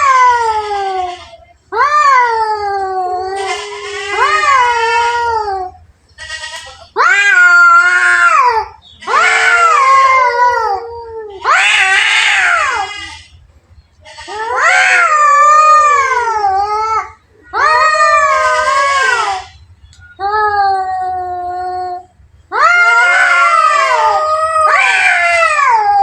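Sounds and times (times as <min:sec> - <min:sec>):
cats yowling: 0:00.0 - 0:13.4, 0:14.0 - 0:19.6, 0:20.2 - 0:26.0.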